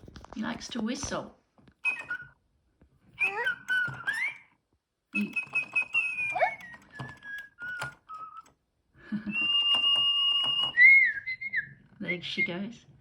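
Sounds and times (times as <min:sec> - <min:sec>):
robotic toy bird whistling: 0:01.8 - 0:02.4, 0:03.2 - 0:04.5, 0:05.2 - 0:08.5, 0:09.2 - 0:11.7.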